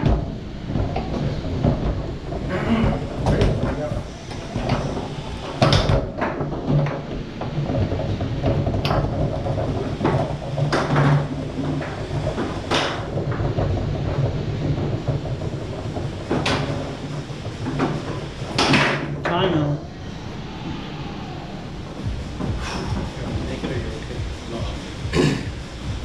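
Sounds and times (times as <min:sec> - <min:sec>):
foosball clacks and knocks: 0:00.0 - 0:19.5
foosball rods sliding and rattling: 0:00.0 - 0:20.8.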